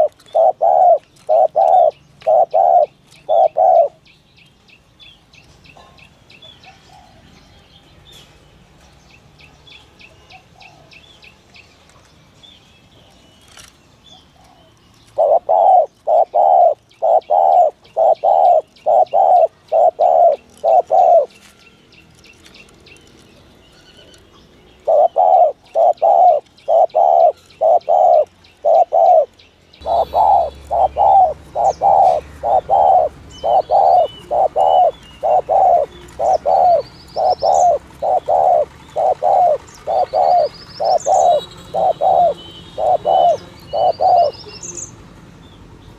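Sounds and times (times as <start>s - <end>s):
dove cooing: 0.0s - 4.0s, 14.4s - 21.4s, 24.8s - 44.5s
small birds chirping: 0.0s - 45.9s.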